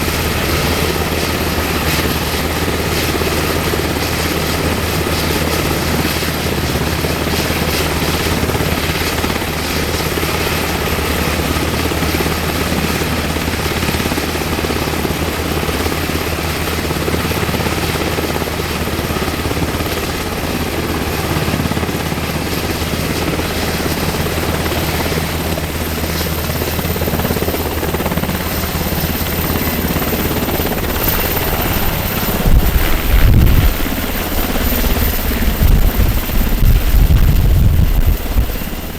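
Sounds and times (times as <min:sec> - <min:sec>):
helicopter rotor beat: 0:00.0 - 0:38.9
turbine whine: 0:26.8 - 0:38.9.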